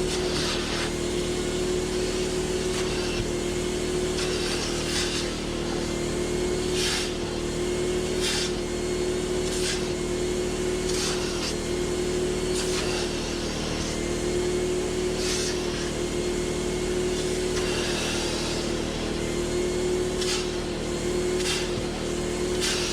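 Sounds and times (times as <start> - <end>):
nozzle hissing on upholstery: 0.0 - 3.3, 4.0 - 5.9, 6.6 - 7.4, 8.0 - 8.7, 9.4 - 10.0, 10.8 - 14.3, 14.9 - 16.1, 17.0 - 22.9
vacuum motor whining: 0.0 - 22.9.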